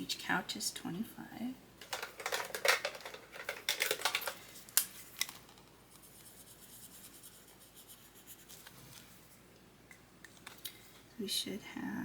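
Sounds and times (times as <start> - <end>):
pen scratching on paper: 6.1 - 8.7.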